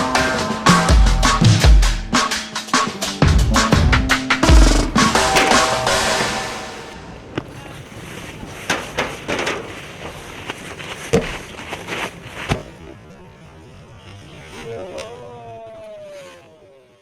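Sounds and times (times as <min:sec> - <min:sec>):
outdoor background noise: 0:00.0 - 0:17.0
sharp knocks and thuds: 0:11.1 - 0:12.8.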